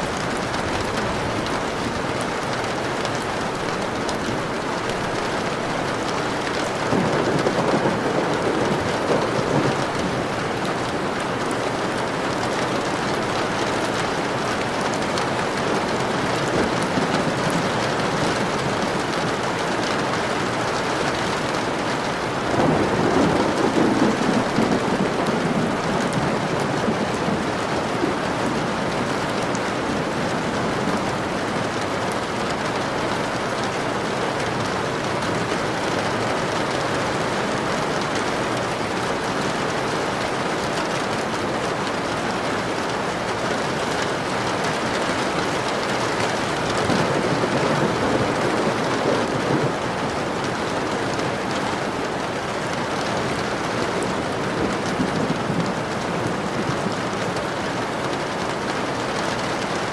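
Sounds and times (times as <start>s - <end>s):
steady rain: 0.0s - 59.9s
thunder rolling: 3.4s - 11.0s, 22.4s - 31.8s, 46.4s - 51.2s.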